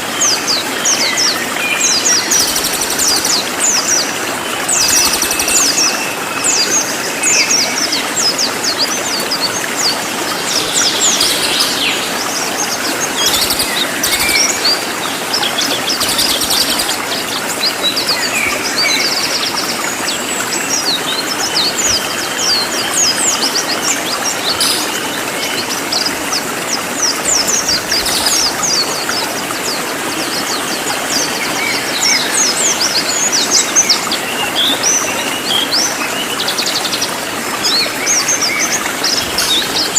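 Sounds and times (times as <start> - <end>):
songbird chirping and trilling: 10.3 - 19.5.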